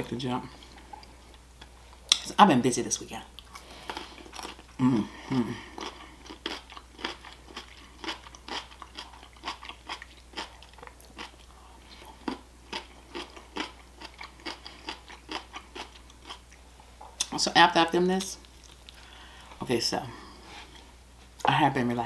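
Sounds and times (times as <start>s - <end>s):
crisp cucumber crunching: 3.4s - 16.6s
person humming: 4.8s - 5.7s.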